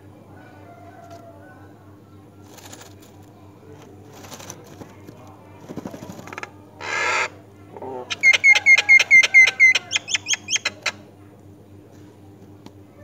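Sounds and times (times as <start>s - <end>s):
nestlings begging calls: 6.8s - 7.4s, 8.1s - 11.1s.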